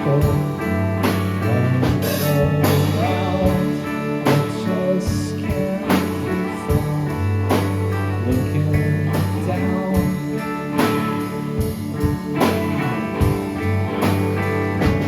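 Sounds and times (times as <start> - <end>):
person singing: 0.0 - 11.6
drum kit hits: 0.0 - 15.0
guitars and bass: 0.0 - 15.0.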